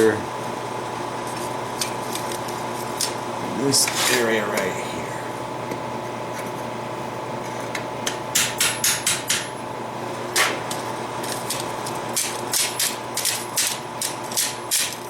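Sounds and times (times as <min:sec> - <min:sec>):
steady background hum: 0:00.0 - 0:15.0
hammer striking steel on anvil: 0:08.4 - 0:09.6.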